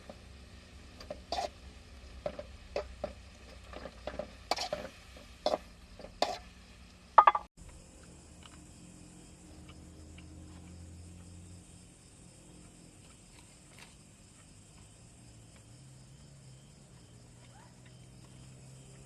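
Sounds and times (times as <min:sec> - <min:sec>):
objects being handled knocking: 0:07.2 - 0:07.5
faint ticks: 0:07.6 - 0:11.5, 0:12.5 - 0:19.0.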